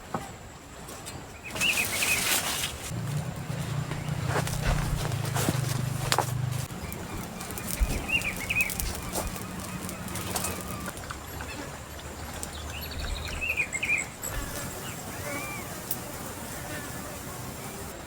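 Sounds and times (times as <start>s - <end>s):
birds chirping: 1.3s - 18.0s
light rustling: 1.5s - 11.4s.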